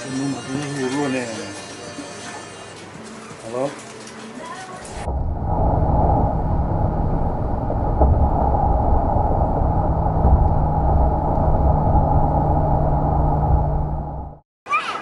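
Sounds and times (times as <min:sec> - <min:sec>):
vehicle rumble: 0:04.9 - 0:14.4.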